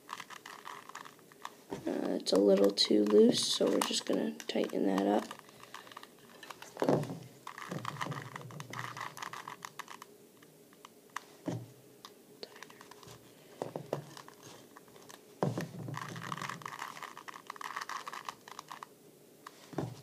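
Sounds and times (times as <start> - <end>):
plastic clicks and scraping: 0.1 - 11.6, 12.4 - 18.9
dull knocks: 15.4 - 16.0.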